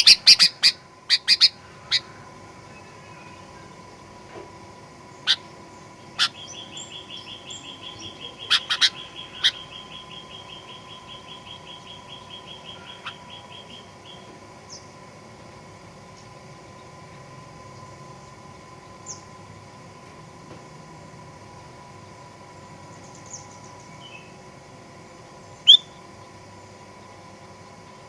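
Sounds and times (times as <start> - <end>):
bird trill: 0.0 - 3.9, 5.1 - 14.9, 25.5 - 26.4.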